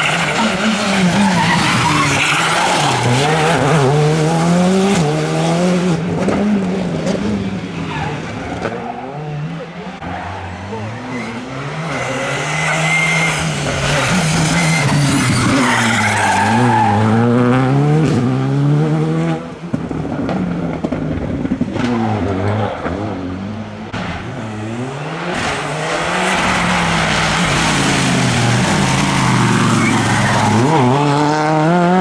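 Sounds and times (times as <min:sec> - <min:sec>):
tyre squeal: 0:00.0 - 0:03.9, 0:10.0 - 0:17.3, 0:24.3 - 0:31.1
rally car engine revving: 0:00.0 - 0:32.0.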